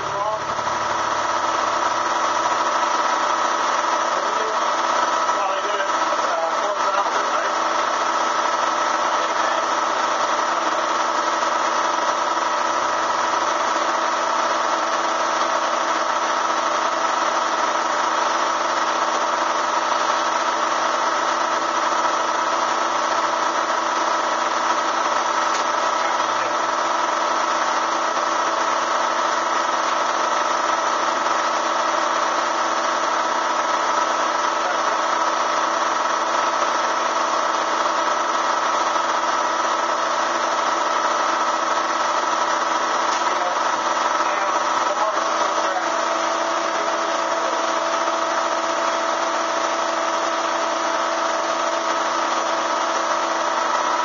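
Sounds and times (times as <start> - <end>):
vacuum motor drone: 40.4 - 54.0.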